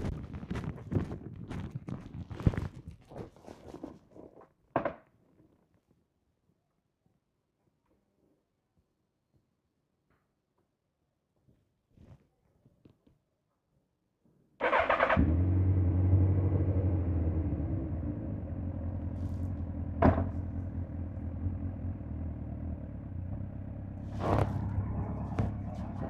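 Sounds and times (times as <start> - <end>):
motorcycle engine starting and idling: 14.6 - 26.0.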